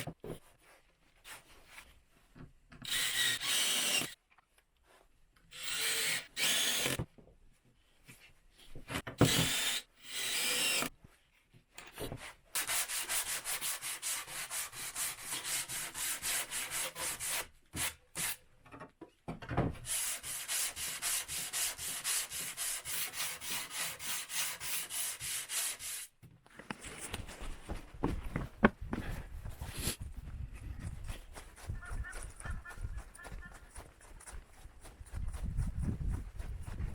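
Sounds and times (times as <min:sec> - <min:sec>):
hand tool strokes on wood: 0:28.9 - 0:30.0.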